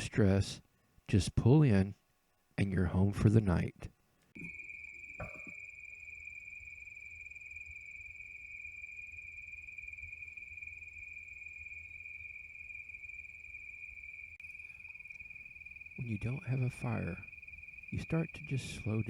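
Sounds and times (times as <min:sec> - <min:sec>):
crickets trilling: 0:04.4 - 0:19.0.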